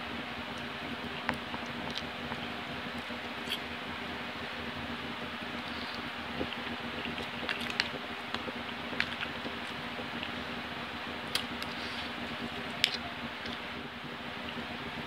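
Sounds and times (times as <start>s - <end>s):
steady hum: 0.0s - 15.0s
person chewing: 3.4s - 3.6s.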